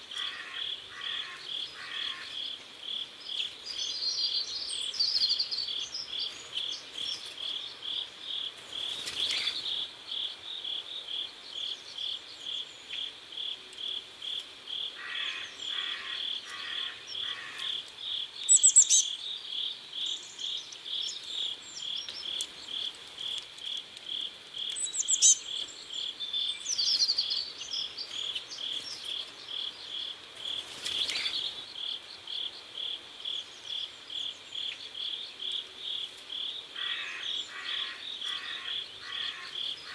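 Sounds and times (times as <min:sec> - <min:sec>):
crickets chirping: 0:00.0 - 0:39.9
bird chirps: 0:15.2 - 0:22.9, 0:24.6 - 0:30.0.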